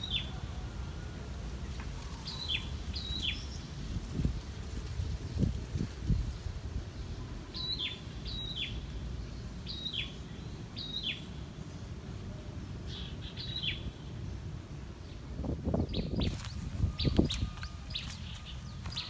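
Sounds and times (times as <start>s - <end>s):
songbird calling: 15.7s - 19.0s.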